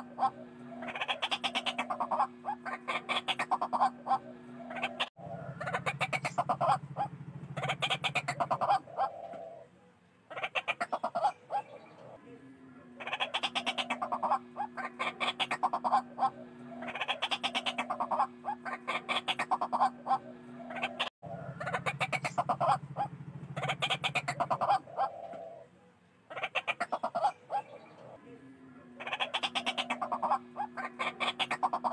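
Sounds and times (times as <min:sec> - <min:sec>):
low pulsing buzz: 0:00.0 - 0:00.9, 0:03.8 - 0:09.6, 0:15.9 - 0:16.9, 0:19.9 - 0:25.8
waterhens calling harshly: 0:00.0 - 0:09.4, 0:13.0 - 0:25.6, 0:29.0 - 0:31.9.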